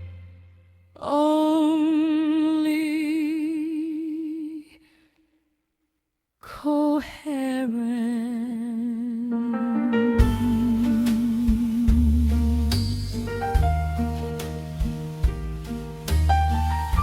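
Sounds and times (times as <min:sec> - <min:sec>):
person singing with vibrato: 0:01.0 - 0:05.0, 0:06.5 - 0:13.3.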